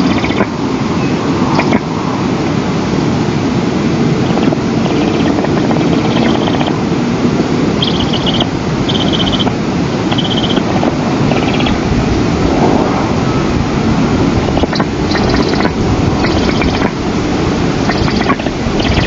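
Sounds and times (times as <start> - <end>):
wind buffeting microphone: 0.0 - 19.0
pulsed high chirring: 7.8 - 9.5, 10.1 - 10.6, 14.6 - 17.0, 17.9 - 19.0.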